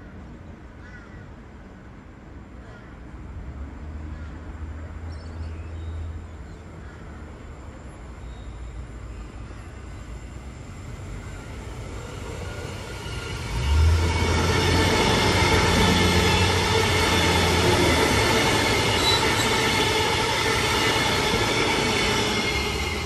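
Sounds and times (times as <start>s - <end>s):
train rumbling: 6.1s - 23.0s.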